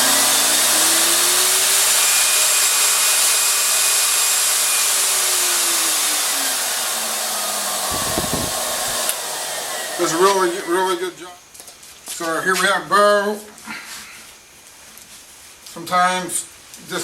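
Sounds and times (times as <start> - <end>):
pet dryer blowing air: 0.0 - 10.9.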